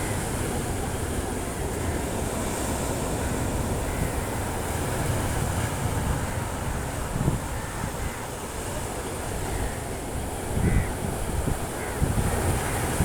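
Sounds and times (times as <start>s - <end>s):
waves on rocky shore: 0.0s - 13.0s
wind on microphone: 10.2s - 13.0s.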